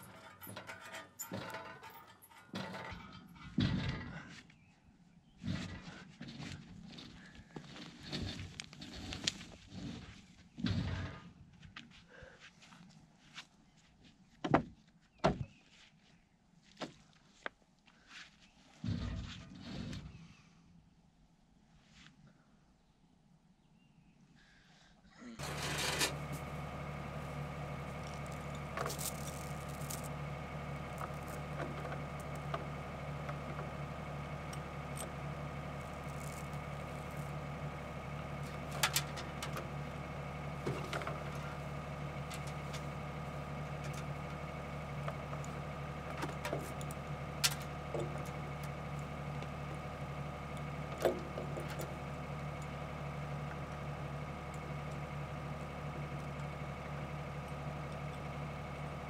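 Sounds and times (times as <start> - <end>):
excavator diesel engine idling: 0.0 - 0.4, 25.4 - 59.0
metallic knocks and clanks: 0.0 - 4.2.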